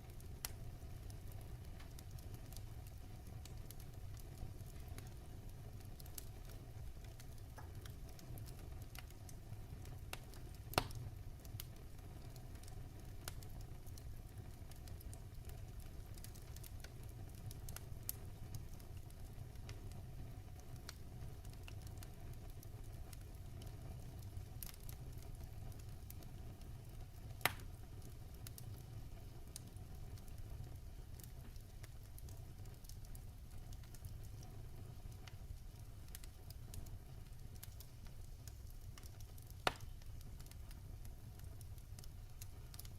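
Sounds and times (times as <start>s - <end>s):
logs burning in fireplace: 0.0s - 42.9s
sharp pops of burning wood: 10.1s - 11.1s, 27.1s - 28.8s, 31.2s - 42.9s.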